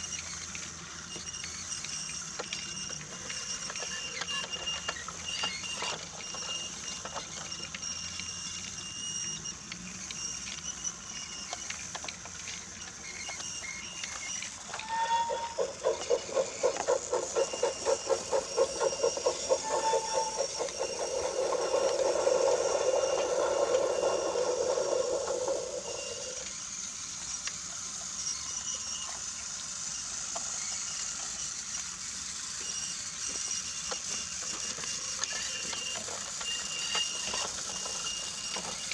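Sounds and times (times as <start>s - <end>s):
toy train motor whirring: 0.0s - 38.9s
wheels clicking on track: 0.0s - 38.9s
pulsing hum: 15.4s - 26.5s.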